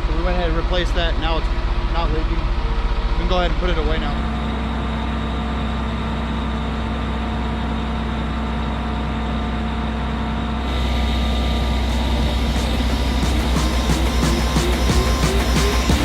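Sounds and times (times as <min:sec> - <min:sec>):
truck engine humming: 0:10.4 - 0:16.0.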